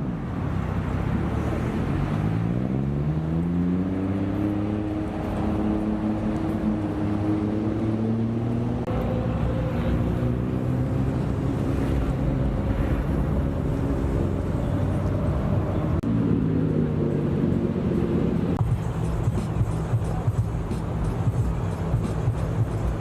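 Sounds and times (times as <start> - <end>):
car engines droning: 0.0 - 23.0.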